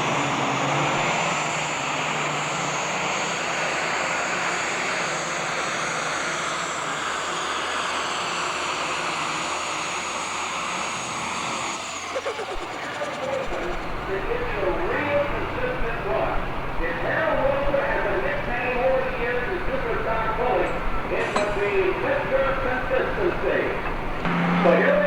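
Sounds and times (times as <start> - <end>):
diesel engine roaring: 0.0 - 25.0
turbo whine: 9.6 - 25.0.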